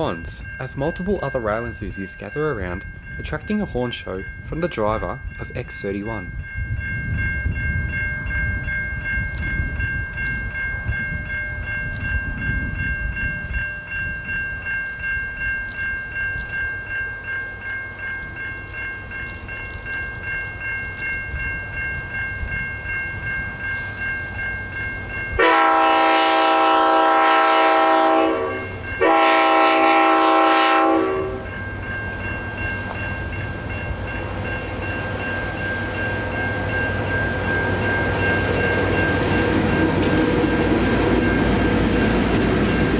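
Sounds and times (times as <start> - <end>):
diesel train running past: 16.4 - 42.9
train horn blasts: 25.4 - 31.5.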